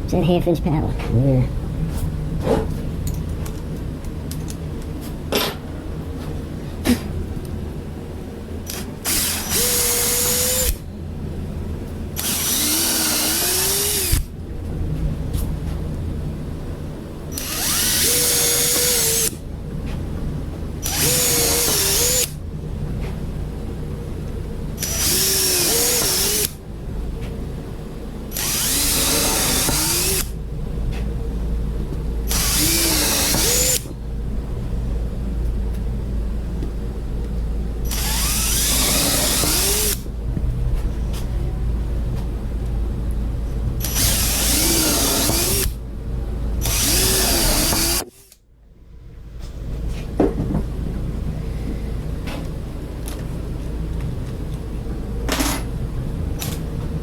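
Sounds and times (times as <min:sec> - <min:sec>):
steady low hum: 0:00.0 - 0:57.0
electric drill boring: 0:08.7 - 0:10.8, 0:12.2 - 0:14.3, 0:17.3 - 0:19.4, 0:20.8 - 0:22.4, 0:24.8 - 0:26.6, 0:28.3 - 0:30.3, 0:32.3 - 0:33.9, 0:37.8 - 0:40.1, 0:43.8 - 0:45.8, 0:46.6 - 0:48.4.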